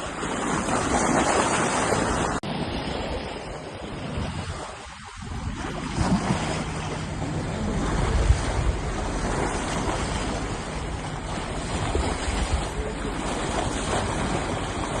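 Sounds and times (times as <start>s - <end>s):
water wash: 0.0s - 15.0s
wind buffeting microphone: 0.0s - 15.0s.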